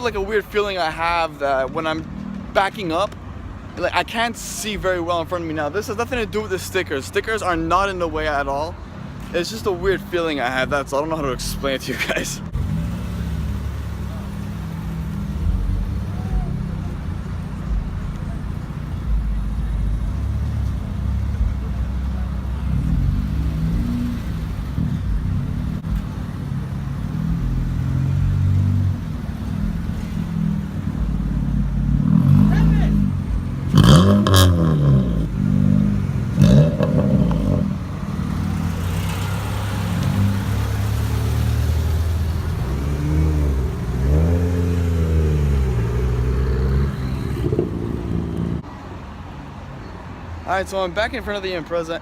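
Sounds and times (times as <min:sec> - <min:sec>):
car engine running at low revs: 0:11.9 - 0:48.6.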